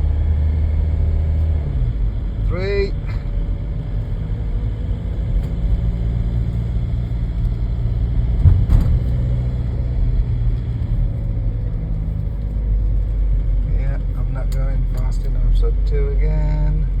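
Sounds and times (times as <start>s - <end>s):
diesel car engine and road rumble: 0.0s - 17.0s
brief knock: 8.4s - 9.1s.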